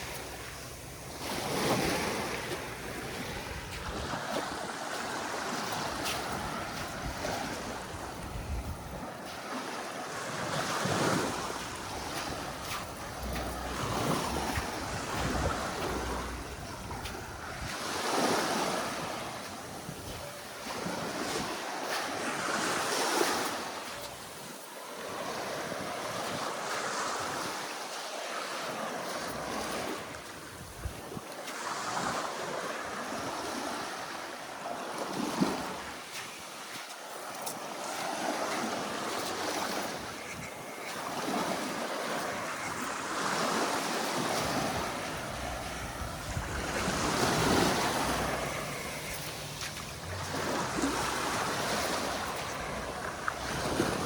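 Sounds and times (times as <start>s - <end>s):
wind noise on microphone: 0.0s - 9.5s, 10.4s - 21.6s, 29.3s - 32.2s, 42.5s - 54.0s
sea waves washing onto beach: 0.0s - 54.0s.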